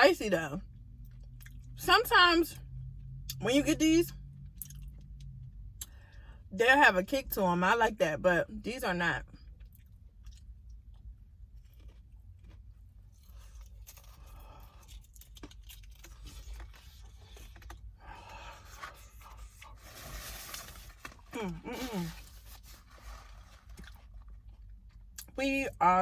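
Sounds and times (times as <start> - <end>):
chewing: 9.4 - 19.8
paper wrapper rustling: 18.7 - 24.4.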